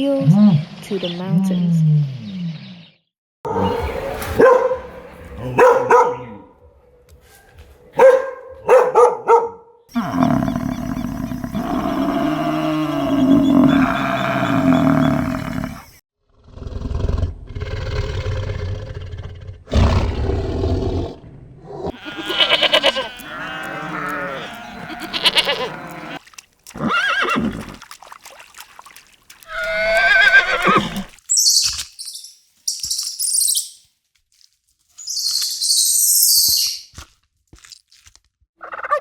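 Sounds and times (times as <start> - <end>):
animal calls: 9.9 - 16.0, 21.7 - 27.7, 29.5 - 31.8, 38.6 - 39.0.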